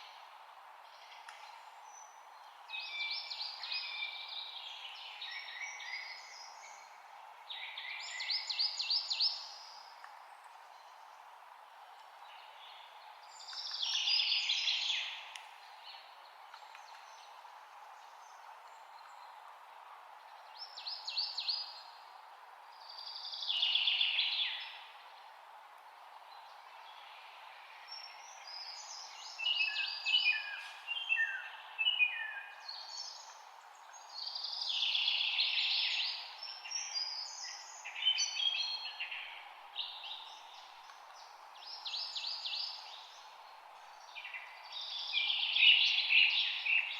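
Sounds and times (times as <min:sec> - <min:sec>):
low background hiss: 0:00.0 - 0:46.9
songbirds singing: 0:00.0 - 0:46.9.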